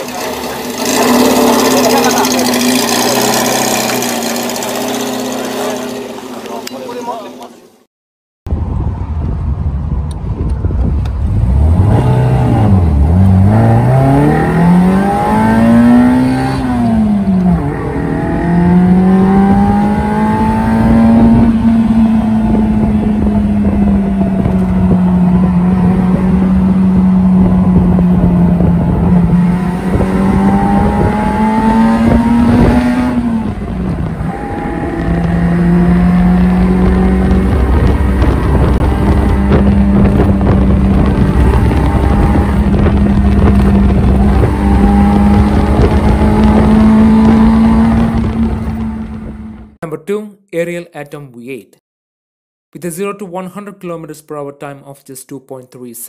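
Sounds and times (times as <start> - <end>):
car engine revving while driving: 0.0 - 6.3, 11.2 - 49.8.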